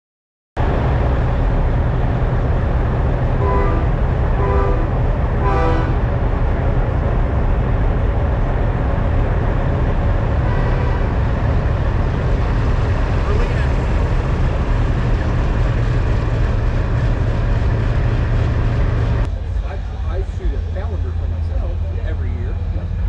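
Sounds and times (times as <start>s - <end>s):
diesel truck engines idling: 0.6s - 23.0s
short horn toots: 3.4s - 6.0s, 10.4s - 11.2s.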